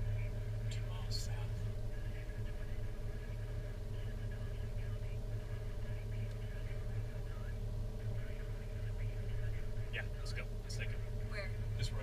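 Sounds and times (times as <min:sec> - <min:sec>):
muffled voices talking: 0:00.0 - 0:12.0
vehicle engine humming: 0:00.0 - 0:12.0.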